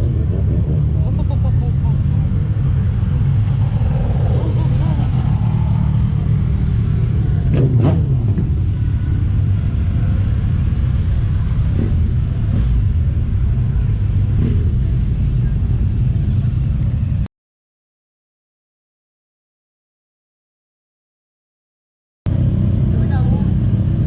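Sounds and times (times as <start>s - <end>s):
low rumble of motor vehicles: 0.0s - 17.3s, 22.3s - 24.0s.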